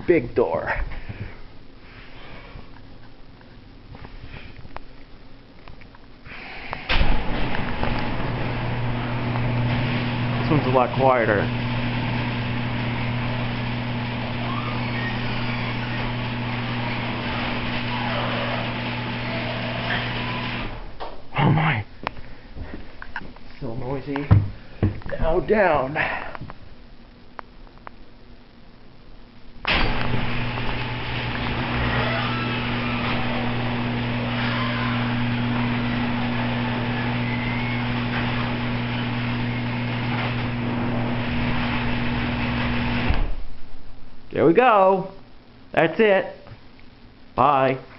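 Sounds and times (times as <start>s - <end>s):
garage door opener motor humming: 6.4s - 21.0s, 29.7s - 43.4s
garage door rattling: 6.8s - 21.0s, 29.7s - 43.5s.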